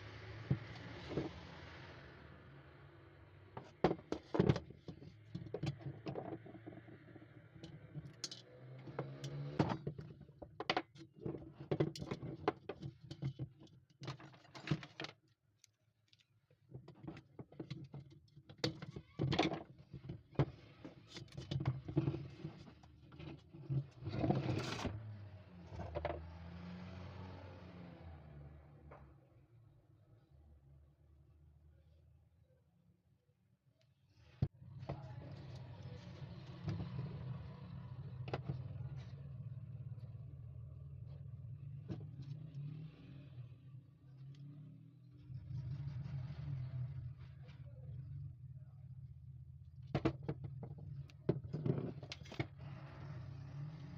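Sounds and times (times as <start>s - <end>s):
small parts and tools clinking: 7.6s - 16.3s.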